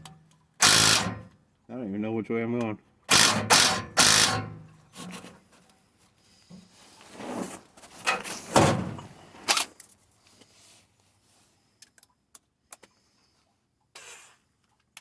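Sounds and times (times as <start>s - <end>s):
ratchet wrench ratcheting: 0.6s - 1.3s, 3.1s - 4.5s.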